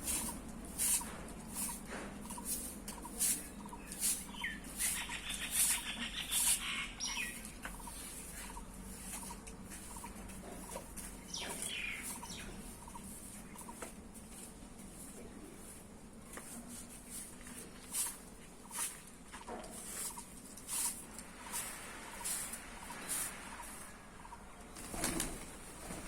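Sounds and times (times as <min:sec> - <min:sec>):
bird sliding call: 0:00.1 - 0:08.0
bird chirping trill: 0:02.3 - 0:08.7, 0:11.2 - 0:13.8
bird short peeps: 0:03.8 - 0:07.4.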